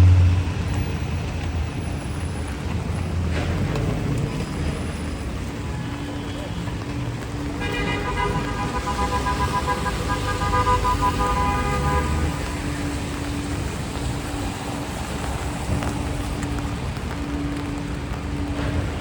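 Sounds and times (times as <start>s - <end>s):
traffic on wet streets: 0.0s - 19.0s
vehicle horn blast: 7.6s - 12.6s.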